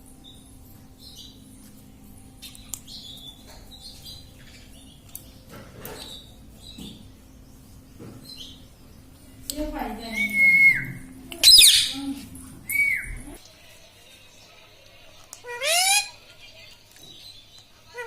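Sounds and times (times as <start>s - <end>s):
faint steady hum: 0.0s - 13.5s
parrot chirping: 2.3s - 13.4s, 15.4s - 16.2s.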